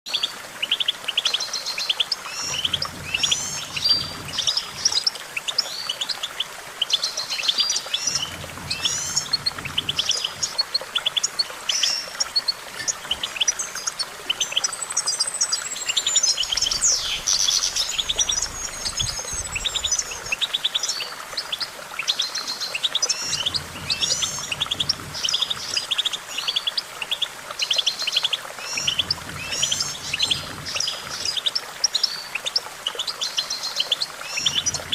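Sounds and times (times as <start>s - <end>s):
goldfinch twittering song: 0.1s - 34.9s.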